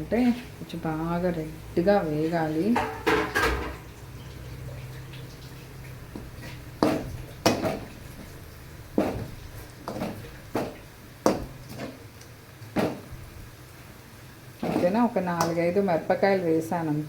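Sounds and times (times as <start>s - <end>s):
metal spatula scraping frying pan: 6.3s - 8.1s, 8.9s - 12.0s, 14.6s - 15.1s.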